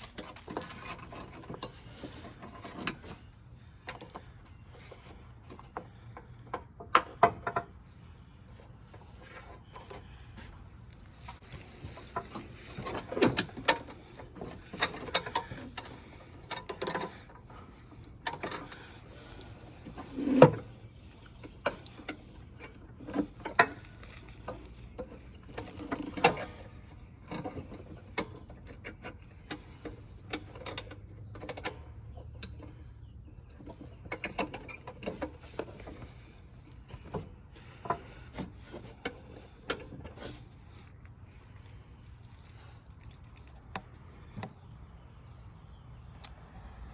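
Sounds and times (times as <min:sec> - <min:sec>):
hand tools clicking and knocking: 0:11.7 - 0:20.7, 0:21.3 - 0:32.8.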